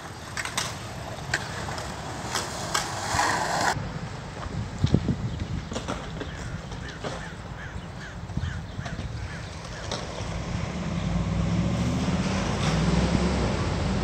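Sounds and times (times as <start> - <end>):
bird calling: 6.0 - 10.1.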